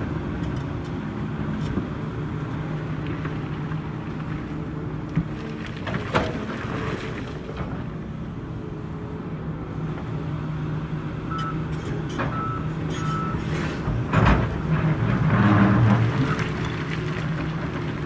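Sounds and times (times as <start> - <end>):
reversing alarm beeping: 12.4 - 13.4.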